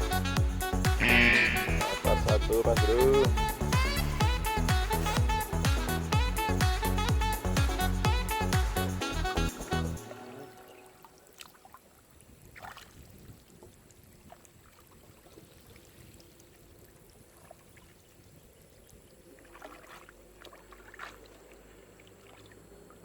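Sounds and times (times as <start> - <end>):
water splashing and trickling: 10.0 - 23.0.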